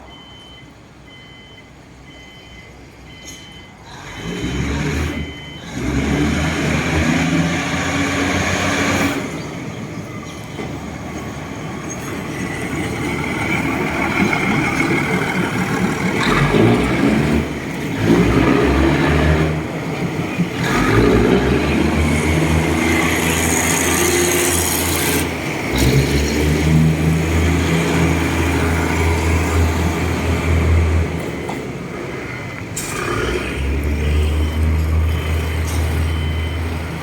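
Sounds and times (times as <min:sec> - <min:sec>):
electronic warning beeps: 0:00.0 - 0:03.8, 0:05.1 - 0:05.7, 0:34.1 - 0:37.0
diesel train engine drone: 0:00.0 - 0:37.0
wheels rumbling on track: 0:00.0 - 0:37.0.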